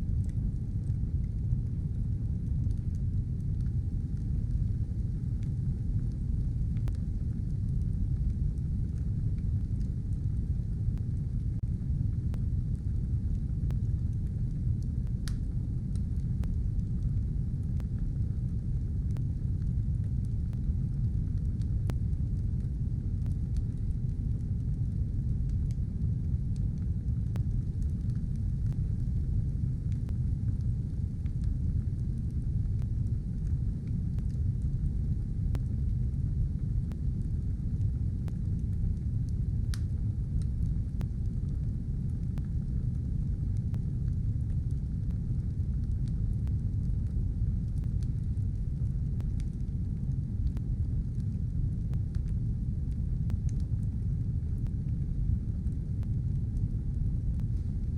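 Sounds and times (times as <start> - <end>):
fire crackles: 0.0 - 57.9
fire roaring: 0.1 - 57.9.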